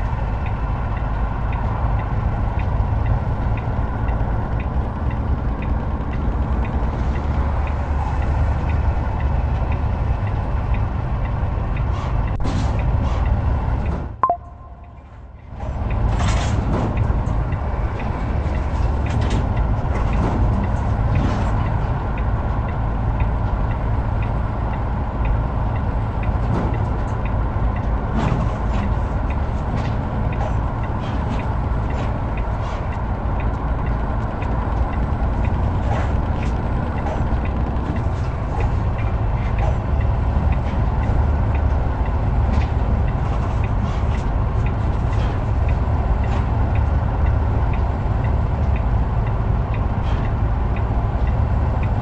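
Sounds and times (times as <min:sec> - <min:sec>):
heavy truck engine and road rumble: 0:00.0 - 0:52.0
short high blip: 0:14.2 - 0:15.0.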